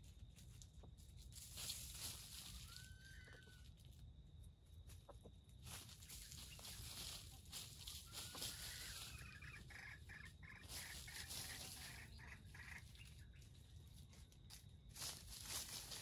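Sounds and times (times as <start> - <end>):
rustling in dry leaves: 0.0 - 16.0
faint bird calls: 2.4 - 3.9, 5.1 - 13.8.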